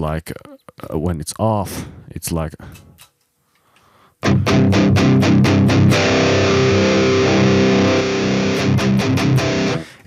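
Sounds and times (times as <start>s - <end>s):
distorted electric guitar: 4.2s - 10.0s.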